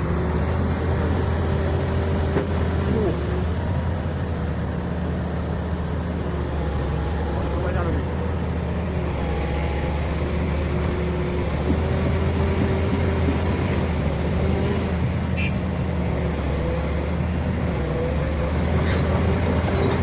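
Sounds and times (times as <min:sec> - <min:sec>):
diesel engine droning: 0:00.0 - 0:20.0.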